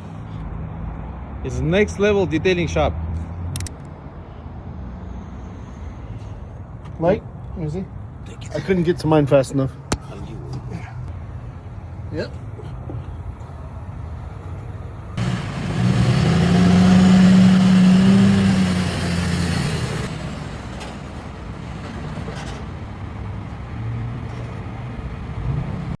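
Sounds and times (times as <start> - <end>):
vehicle engine running: 15.0 - 23.7.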